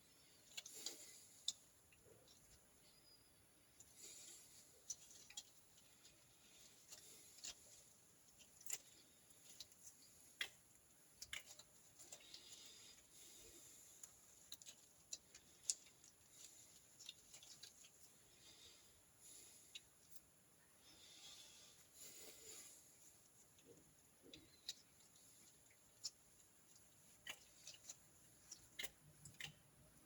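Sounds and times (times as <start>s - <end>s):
small clicks and taps of metal parts: 6.8s - 13.0s, 14.0s - 18.1s.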